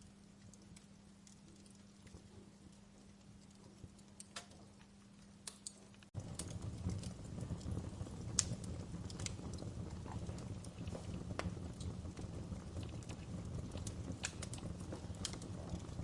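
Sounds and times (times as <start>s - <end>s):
low rumble of flames: 0.0s - 16.0s
wood fire crackling: 0.0s - 16.0s.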